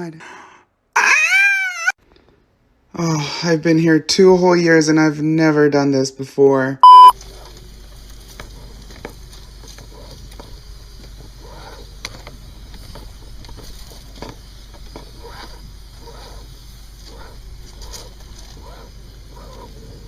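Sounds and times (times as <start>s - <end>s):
clothes dryer humming: 6.8s - 20.0s.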